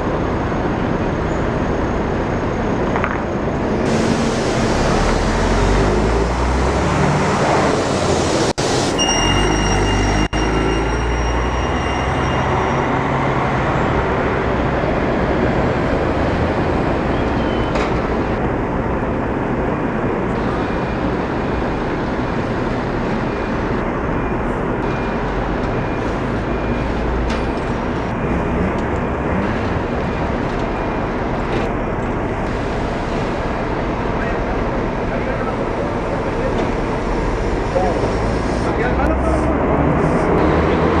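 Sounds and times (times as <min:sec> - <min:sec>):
road noise: 0:00.0 - 0:41.0
coach engine running: 0:17.8 - 0:40.6.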